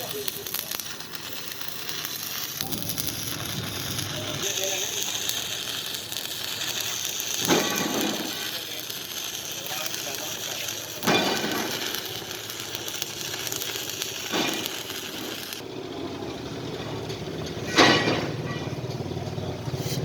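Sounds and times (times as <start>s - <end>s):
arc welding hiss: 0.0s - 15.6s.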